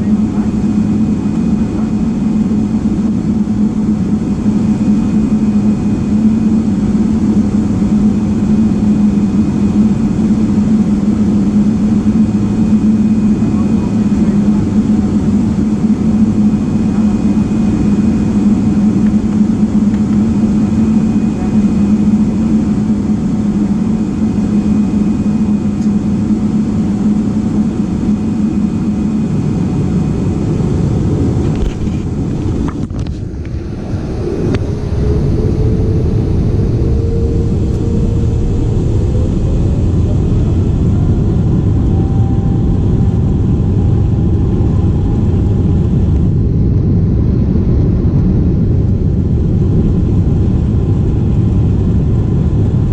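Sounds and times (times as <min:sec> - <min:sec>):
jet engines roaring in cabin: 0:00.0 - 0:52.9
low hum: 0:00.0 - 0:52.9.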